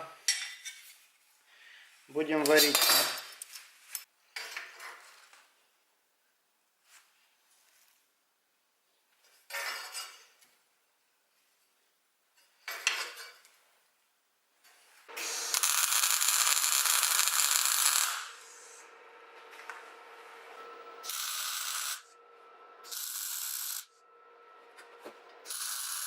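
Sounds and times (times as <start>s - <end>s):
electric arc welding: 15.1s - 18.9s, 21.0s - 22.1s, 22.8s - 24.0s, 25.4s - 26.0s
low hum: 18.3s - 25.5s.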